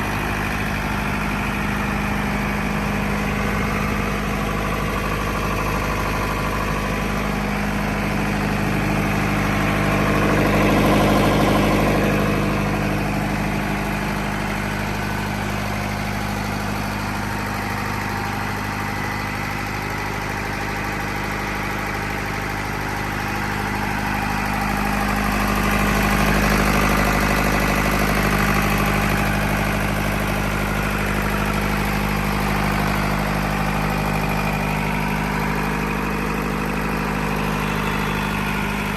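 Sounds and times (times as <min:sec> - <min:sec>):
diesel generator running: 0:00.0 - 0:38.9.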